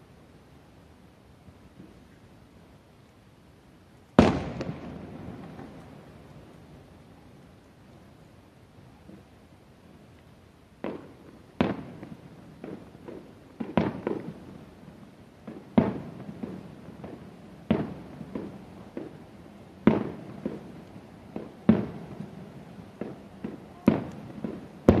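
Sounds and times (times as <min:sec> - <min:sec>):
distant firework booms: 0:04.2 - 0:06.0, 0:10.8 - 0:14.6, 0:15.4 - 0:19.2, 0:19.8 - 0:25.0.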